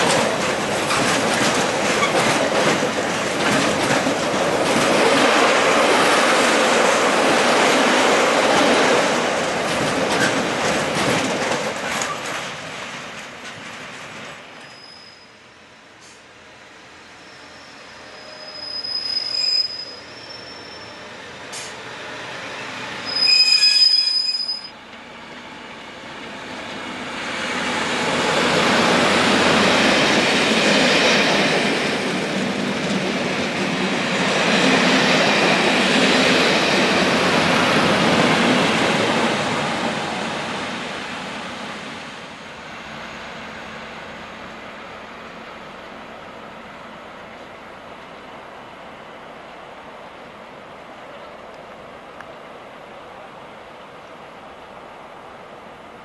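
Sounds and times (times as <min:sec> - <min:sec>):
train rumbling past: 0:00.0 - 0:56.0
short shrill tones: 0:14.6 - 0:15.4, 0:17.2 - 0:21.1, 0:23.0 - 0:24.7.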